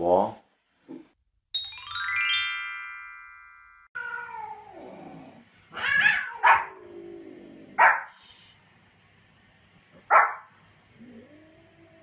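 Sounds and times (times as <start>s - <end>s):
musical chime: 1.6s - 4.0s
dog barking: 6.0s - 6.8s, 7.8s - 8.2s, 10.1s - 10.5s.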